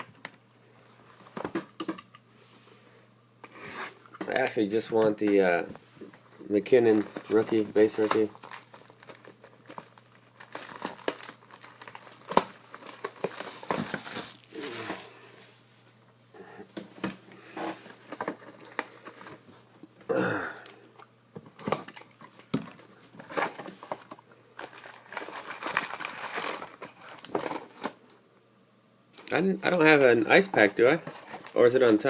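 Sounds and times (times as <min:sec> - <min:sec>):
plastic wrapping crinkling and tearing: 0:06.8 - 0:14.9, 0:23.3 - 0:28.0, 0:29.2 - 0:32.0.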